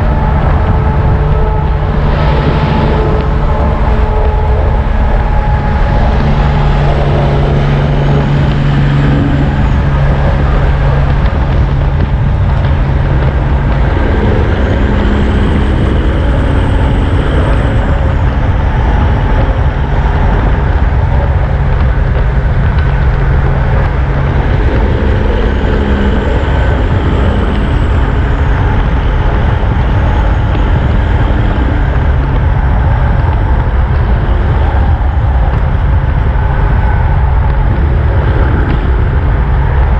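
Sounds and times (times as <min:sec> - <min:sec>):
heavy trucks rumbling: 0:00.0 - 0:39.9.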